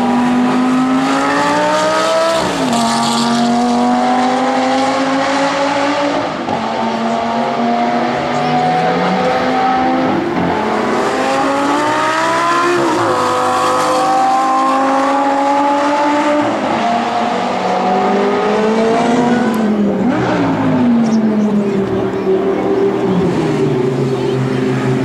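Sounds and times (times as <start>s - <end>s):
car engine accelerating hard: 0.0s - 25.0s.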